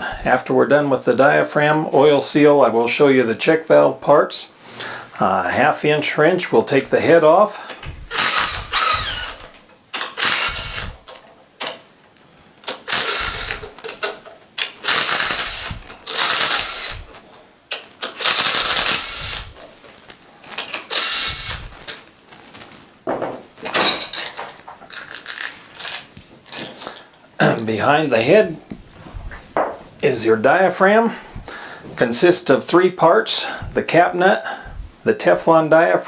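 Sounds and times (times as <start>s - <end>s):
ratchet wrench clicking: 8.1s - 11.2s, 12.7s - 19.6s, 20.6s - 21.7s.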